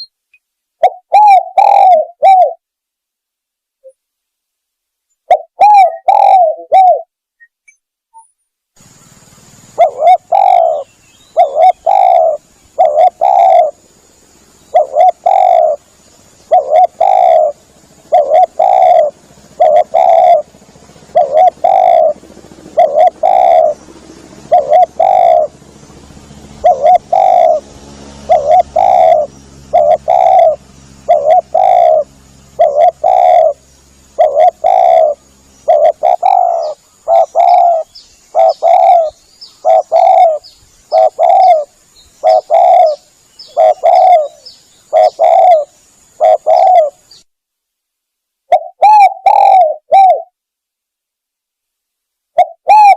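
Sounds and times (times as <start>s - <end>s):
dove cooing: 0.8s - 2.6s, 5.3s - 7.1s, 9.7s - 25.7s, 26.5s - 47.2s, 48.5s - 50.4s, 52.4s - 52.9s.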